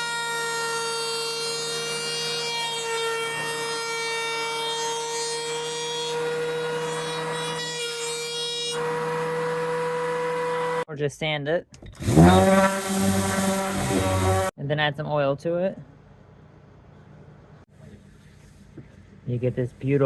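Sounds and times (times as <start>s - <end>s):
power saw cutting wood: 0.0s - 10.9s, 12.0s - 14.6s.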